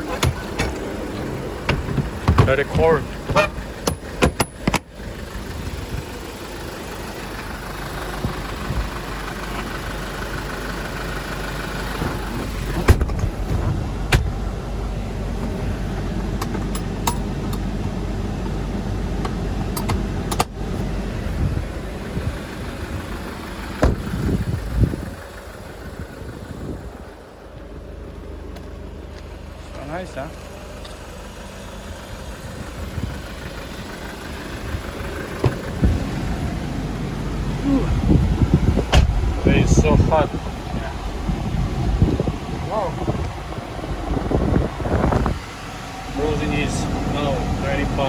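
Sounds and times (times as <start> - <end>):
truck engine idling: 0.0 - 48.0
sharp clicks and knocks: 19.2 - 20.6.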